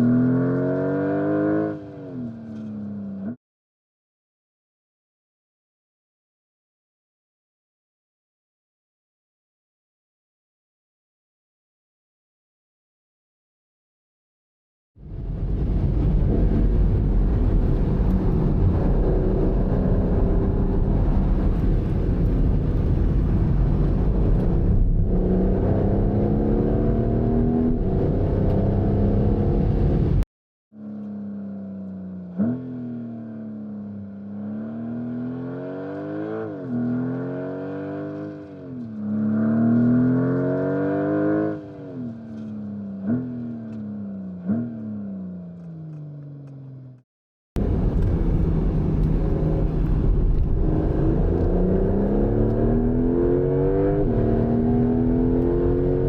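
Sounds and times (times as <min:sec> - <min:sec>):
car engine accelerating hard: 0:00.0 - 0:03.4, 0:15.1 - 0:30.2, 0:30.8 - 0:47.0, 0:47.6 - 0:56.0
wind and road noise: 0:00.0 - 0:03.4, 0:15.0 - 0:30.2, 0:30.8 - 0:47.0, 0:47.6 - 0:56.0.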